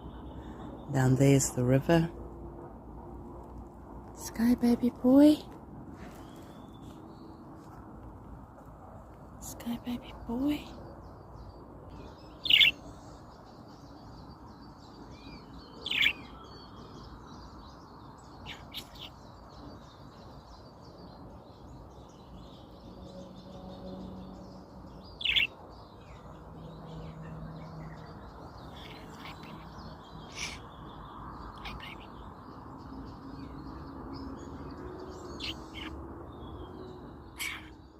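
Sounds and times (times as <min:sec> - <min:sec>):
budgerigar chirping: 0:12.5 - 0:12.8, 0:25.2 - 0:25.5
faint bird calls: 0:28.6 - 0:30.9, 0:37.4 - 0:37.9.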